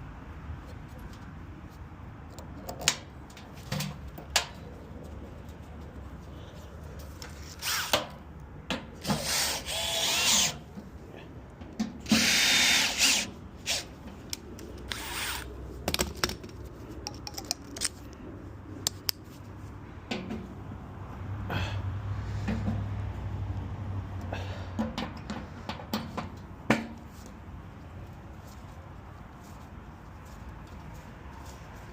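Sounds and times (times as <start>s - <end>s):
cordless drill whining: 9.2s - 10.6s, 12.1s - 13.9s.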